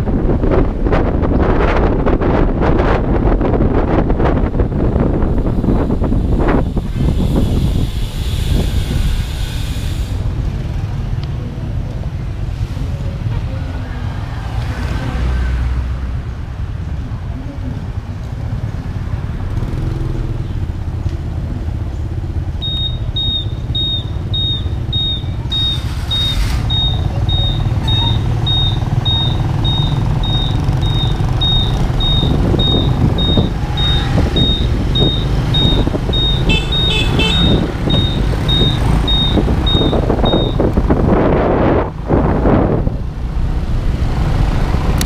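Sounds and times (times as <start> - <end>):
motorbike engine and wind rumble: 0.0 - 45.0
short high beeps: 22.6 - 40.6.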